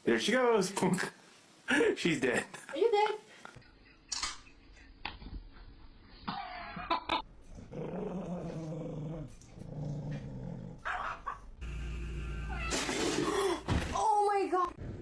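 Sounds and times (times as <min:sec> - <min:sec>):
pet animal growling: 0:07.6 - 0:11.4.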